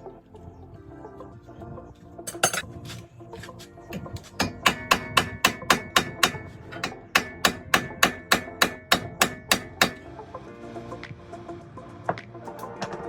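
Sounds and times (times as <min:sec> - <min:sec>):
background music: 0:00.0 - 0:13.0
hammer blows on metal: 0:03.9 - 0:10.1.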